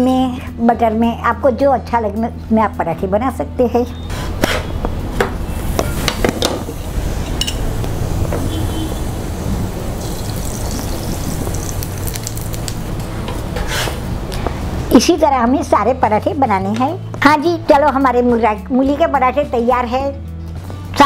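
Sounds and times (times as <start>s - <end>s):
flatbread sizzling in oil: 5.6s - 14.0s.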